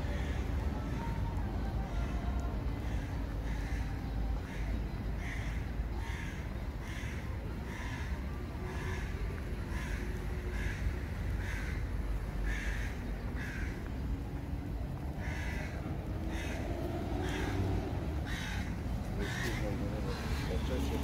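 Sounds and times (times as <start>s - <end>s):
bird cawing: 8.8s - 13.9s, 15.2s - 20.6s.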